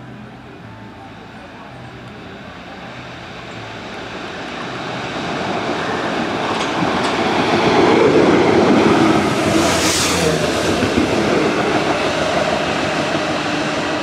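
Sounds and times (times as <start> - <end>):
locomotive train running past: 0.0 - 14.0
high hiss: 8.7 - 13.8.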